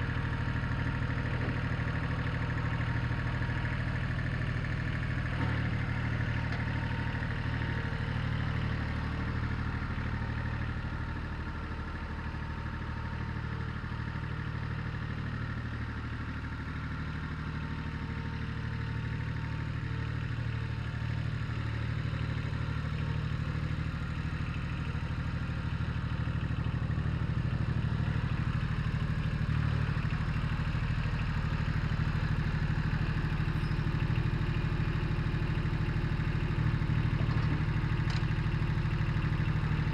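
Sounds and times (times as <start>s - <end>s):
tractor engine running: 23.3s - 39.9s.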